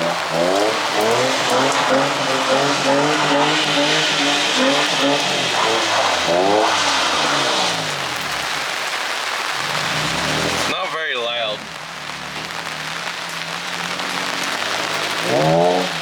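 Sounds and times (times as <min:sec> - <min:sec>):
car engine revving hard: 0:00.0 - 0:10.8, 0:11.6 - 0:16.0
tyre spray on wet pavement: 0:00.0 - 0:16.0.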